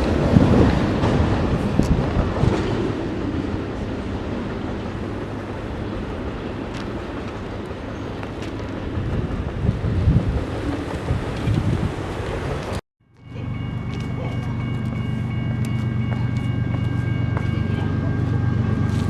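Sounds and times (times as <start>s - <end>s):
passing train rumble: 0.0s - 19.0s
faint clicks from rails: 6.6s - 9.6s.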